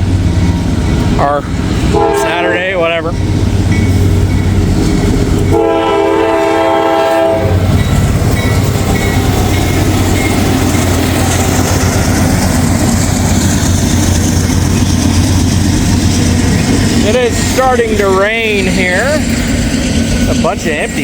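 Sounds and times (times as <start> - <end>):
train rumbling along rails: 0.0 - 21.0
locomotive air horn blast: 1.9 - 2.8, 5.5 - 7.7.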